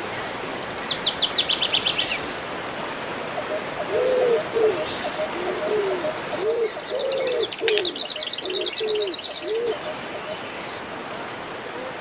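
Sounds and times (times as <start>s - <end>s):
insect hiss: 0.0s - 12.0s
low bird cooing: 3.4s - 10.8s.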